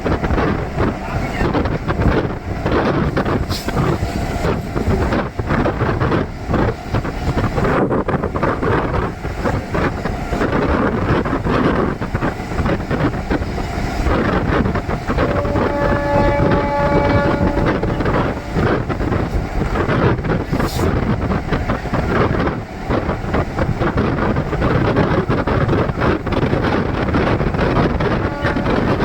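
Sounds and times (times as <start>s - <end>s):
train coaches rushing and rattling: 0.0s - 29.0s
wind buffeting microphone: 0.0s - 29.0s
horn-like tone: 15.2s - 19.2s, 28.1s - 29.0s.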